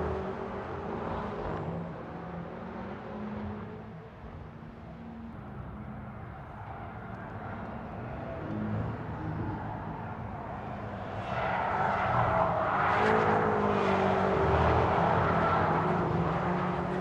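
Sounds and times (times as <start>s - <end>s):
car engine driven hard: 6.6s - 17.0s.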